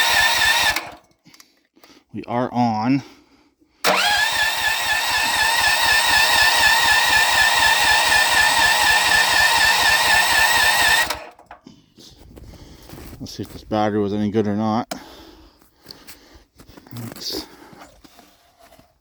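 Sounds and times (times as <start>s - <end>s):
electric starter cranking engine: 0.0s - 1.1s, 3.8s - 11.6s.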